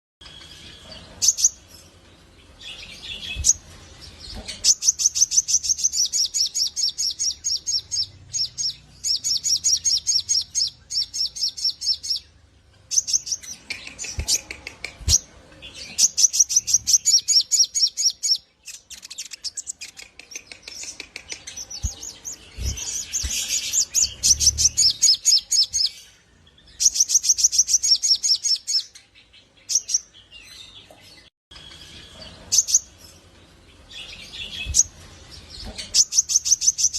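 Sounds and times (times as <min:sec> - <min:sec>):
bird fast trilling song: 0:04.3 - 0:12.3, 0:12.9 - 0:26.0, 0:26.7 - 0:28.9.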